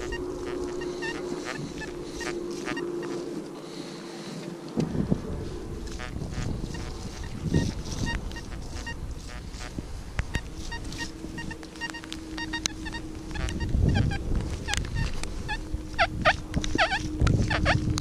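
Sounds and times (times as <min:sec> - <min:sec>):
metal detector beeping: 0:00.0 - 0:03.5, 0:05.9 - 0:18.0
low rumble: 0:00.0 - 0:18.0.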